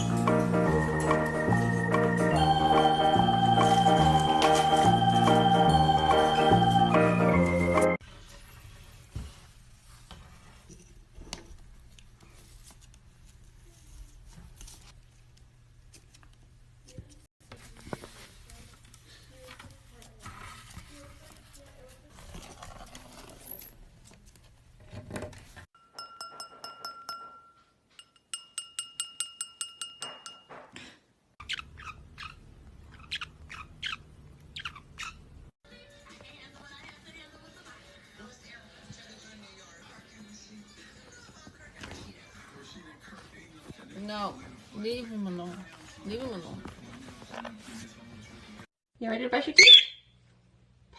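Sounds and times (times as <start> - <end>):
bird chirping: 31.4 - 35.2, 49.6 - 50.1.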